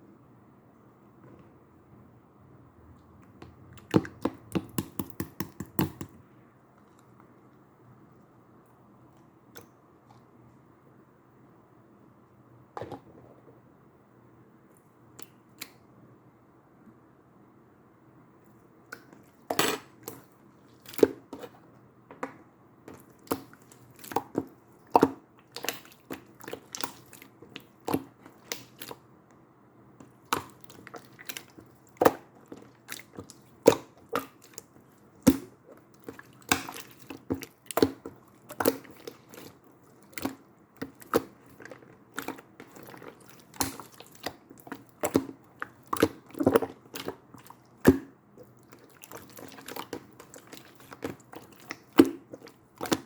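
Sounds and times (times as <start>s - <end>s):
slime squishing: 3.0s - 7.2s, 18.5s - 21.7s, 22.8s - 29.1s, 30.0s - 53.0s.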